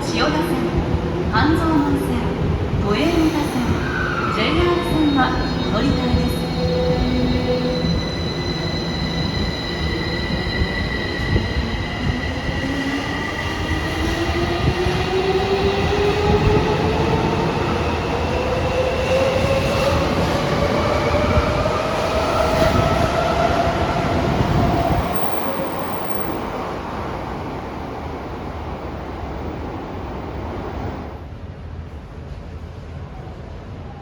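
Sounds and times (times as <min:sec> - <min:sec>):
wheels rumbling on rail: 0:18.8 - 0:32.8.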